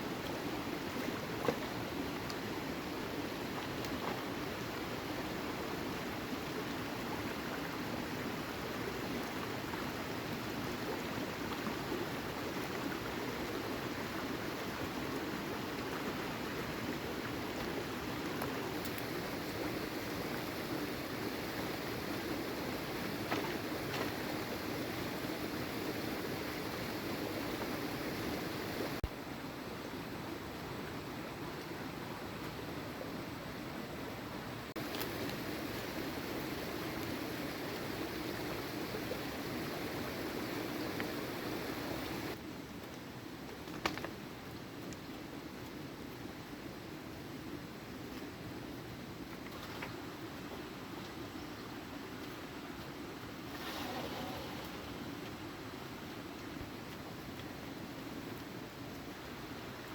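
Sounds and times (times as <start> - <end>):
water rushing: 0.0 - 29.1, 33.4 - 42.4.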